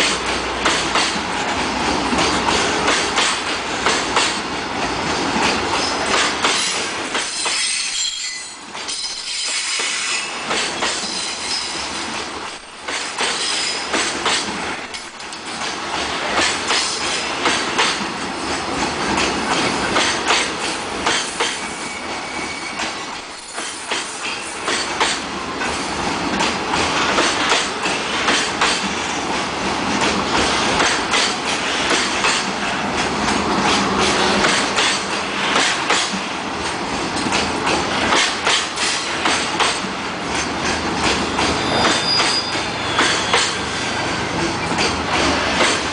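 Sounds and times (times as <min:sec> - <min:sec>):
train wheels clattering over rail joints: 0:00.0 - 0:45.9
high wheel squeal: 0:21.6 - 0:22.9, 0:41.5 - 0:43.8.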